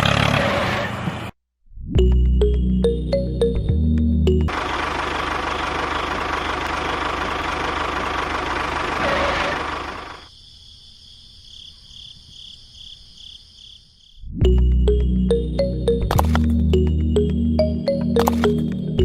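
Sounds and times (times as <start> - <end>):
small engine rough idle: 4.5 - 10.3.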